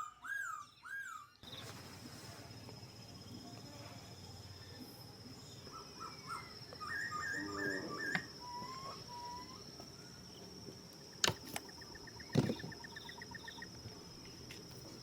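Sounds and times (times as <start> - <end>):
high insect drone: 1.4 - 15.0
bird call: 5.6 - 10.2, 11.1 - 13.8.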